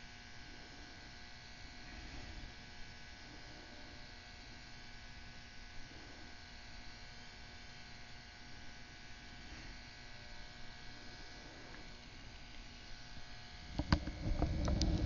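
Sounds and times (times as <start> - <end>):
heat gun blower hum and hiss: 0.0 - 15.0.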